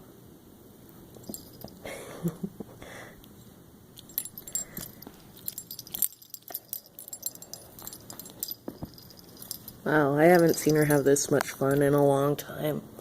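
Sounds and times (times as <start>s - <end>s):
light metallic jingles and clicks: 1.1s - 2.4s, 4.0s - 12.3s.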